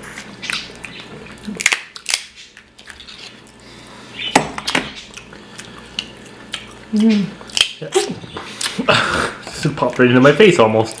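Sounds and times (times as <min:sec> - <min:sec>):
lobster shell cracking: 0:00.4 - 0:03.6, 0:07.4 - 0:07.9.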